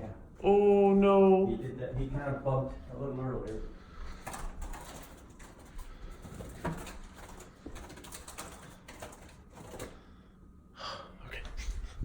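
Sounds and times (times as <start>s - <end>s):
bird scratching and fluttering: 4.1s - 10.1s.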